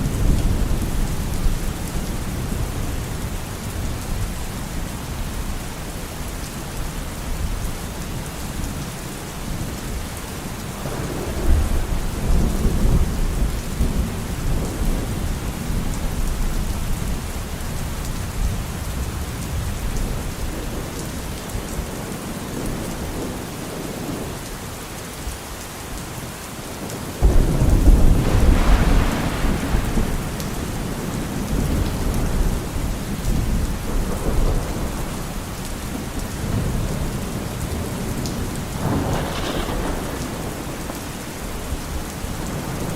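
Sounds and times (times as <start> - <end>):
steady rain: 0.0 - 42.9
thunder rolling: 10.7 - 17.2, 27.2 - 42.9.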